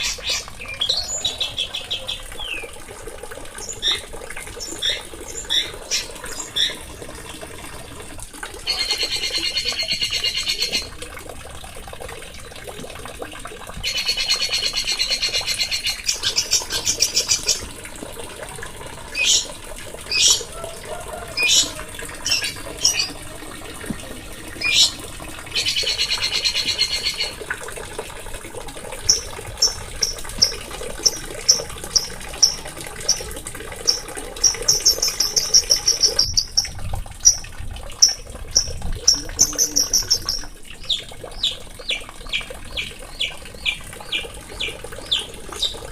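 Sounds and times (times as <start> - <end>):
songbirds singing: 0.0 - 2.8, 3.6 - 7.2, 13.8 - 17.7, 19.1 - 23.3, 24.6 - 27.4, 29.0 - 45.9
buzzy rapid bird trills: 19.1 - 19.5, 20.1 - 23.2, 29.0 - 37.4, 38.0 - 45.8.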